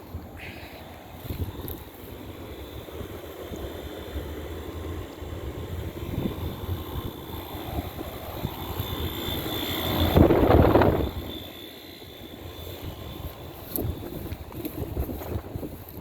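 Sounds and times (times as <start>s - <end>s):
air-conditioner fan whooshing: 0.0s - 16.0s.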